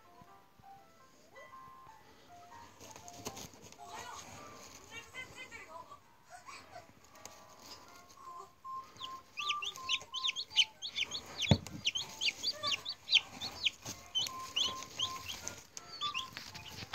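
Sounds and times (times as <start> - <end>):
chicks peeping: 7.1 - 16.9
thump: 11.5 - 11.9.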